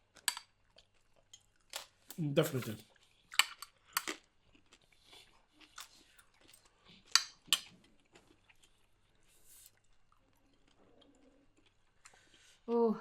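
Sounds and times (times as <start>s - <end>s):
chewing and biting food: 0.0s - 2.0s, 2.8s - 12.4s.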